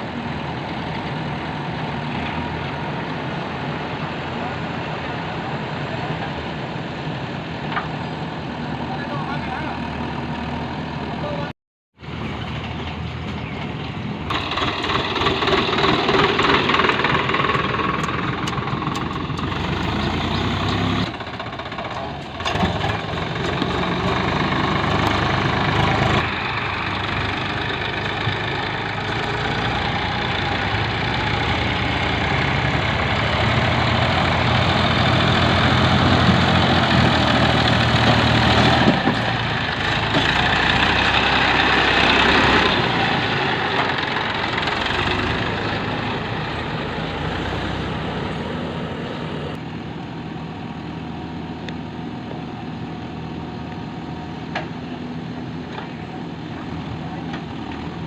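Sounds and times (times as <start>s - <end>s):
diesel machinery clattering: 12.1s - 48.3s.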